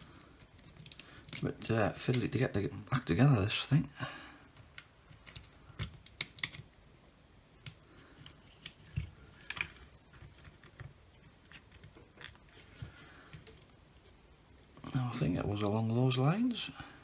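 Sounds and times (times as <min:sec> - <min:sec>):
plastic parts clicking: 0:00.4 - 0:02.4, 0:04.5 - 0:06.7, 0:07.6 - 0:12.7.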